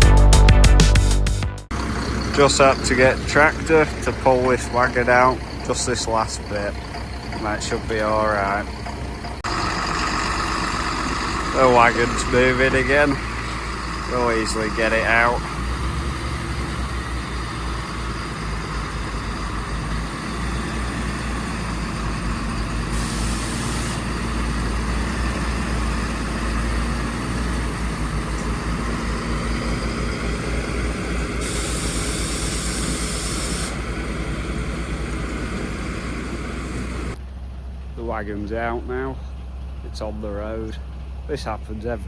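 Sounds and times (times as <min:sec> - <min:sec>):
diesel engines under load: 0:01.6 - 0:42.0
burst of hiss: 0:22.9 - 0:24.1, 0:31.4 - 0:33.8.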